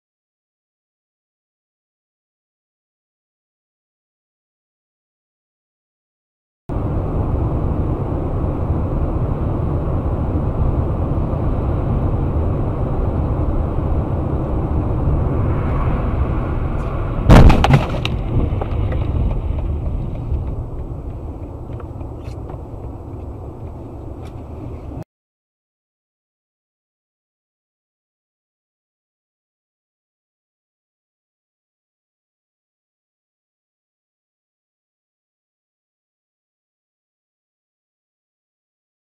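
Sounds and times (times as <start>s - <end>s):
vehicle running noise: 6.7s - 25.0s
loud crash impact: 17.2s - 18.8s.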